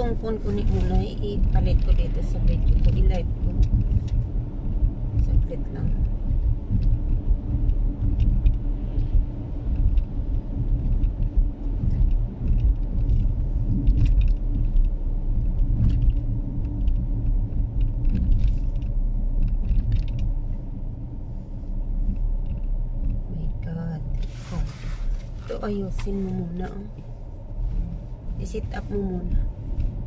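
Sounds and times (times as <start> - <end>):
car rumbling: 0.0 - 30.0
light clicks and taps: 5.2 - 20.4.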